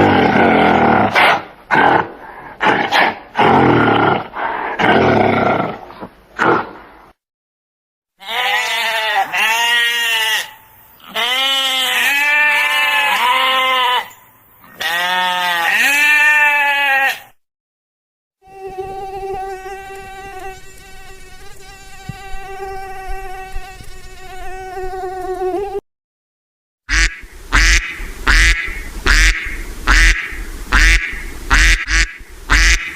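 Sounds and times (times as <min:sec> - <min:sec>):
animal rough cries: 0:08.2 - 0:17.3.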